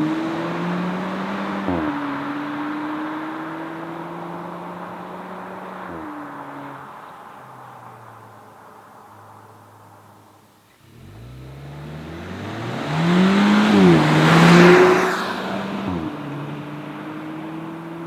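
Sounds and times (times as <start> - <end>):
car engine accelerating hard: 0.0 - 7.0, 10.8 - 18.0.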